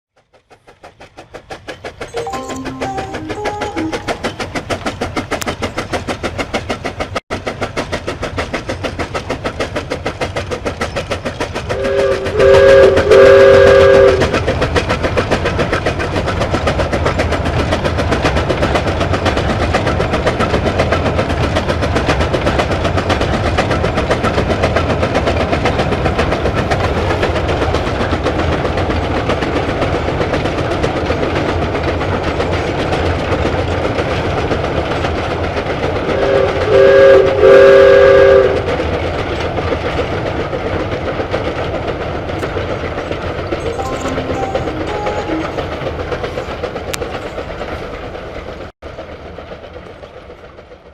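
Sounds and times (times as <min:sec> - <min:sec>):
train clattering on tracks: 0:00.1 - 0:50.9
train horn blasts: 0:11.8 - 0:14.4, 0:36.1 - 0:38.6, 0:43.7 - 0:45.9.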